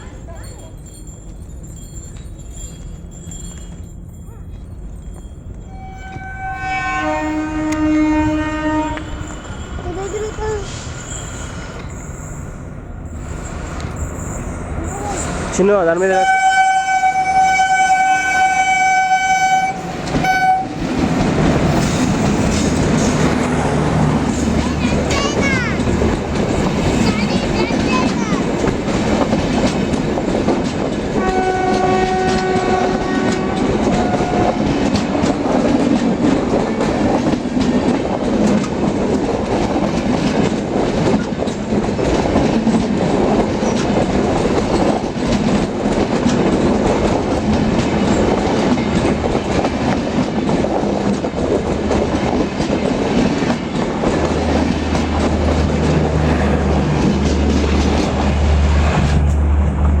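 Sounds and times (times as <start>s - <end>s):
train horn chord: 5.7s - 9.2s, 16.1s - 20.9s, 31.1s - 34.9s
train wheels clattering over rail joints: 19.9s - 60.0s.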